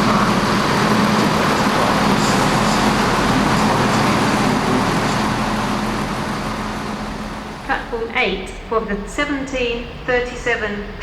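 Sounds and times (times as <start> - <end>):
low hum: 0.0 - 8.3
train rumbling past: 0.0 - 10.2.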